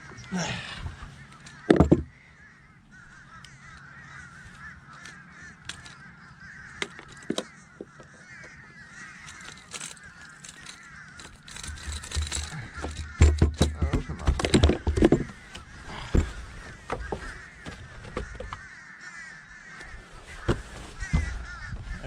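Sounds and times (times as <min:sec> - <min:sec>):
flock of birds calling: 0:00.0 - 0:22.0
sharp knocks and clicks: 0:01.4 - 0:02.2, 0:06.7 - 0:08.6, 0:09.2 - 0:18.7.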